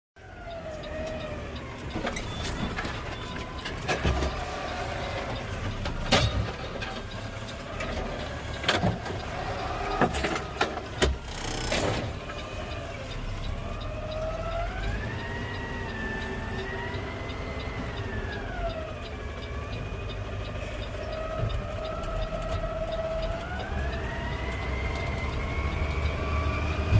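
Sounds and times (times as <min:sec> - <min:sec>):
garbage truck whine: 0:00.2 - 0:26.9
knocks and clanks: 0:05.7 - 0:07.1.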